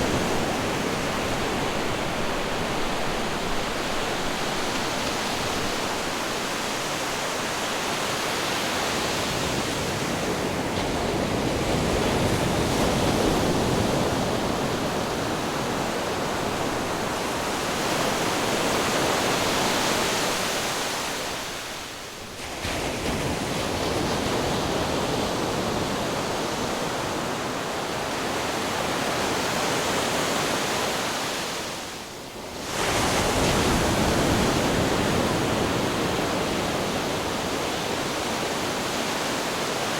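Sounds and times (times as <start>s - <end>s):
ocean surf: 0.0s - 39.9s.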